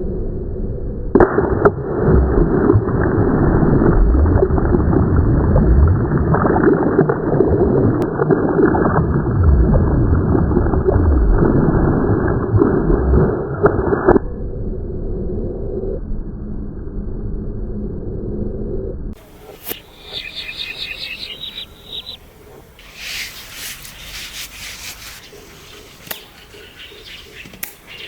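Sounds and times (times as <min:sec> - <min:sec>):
sharp clicks: 0:26.0 - 0:26.3, 0:27.4 - 0:27.9.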